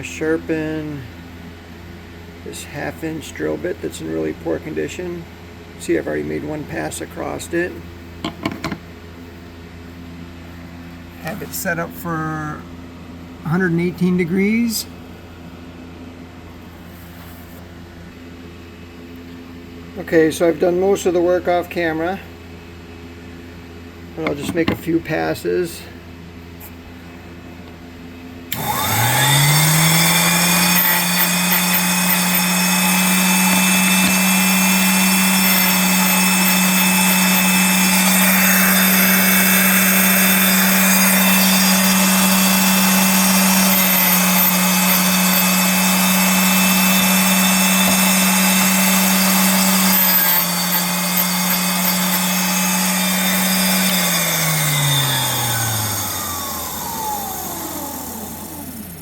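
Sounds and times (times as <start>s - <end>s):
electric motor humming: 28.5s - 59.0s
grinding wheel rasping on drill bit: 28.5s - 59.0s.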